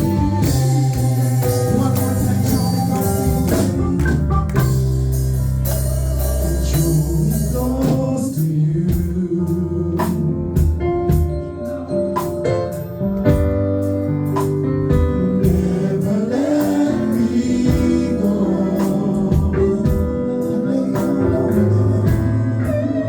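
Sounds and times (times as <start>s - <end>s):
singing: 0.0s - 4.8s
percussion hits: 0.0s - 9.2s, 10.1s - 20.3s
organ and band playing: 0.0s - 23.0s.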